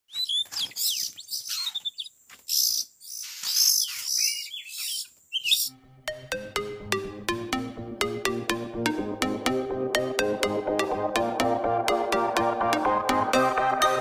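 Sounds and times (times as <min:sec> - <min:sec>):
bird rasping screeches and whistles: 0:00.1 - 0:05.7
electronic music with plucked notes: 0:05.7 - 0:14.0.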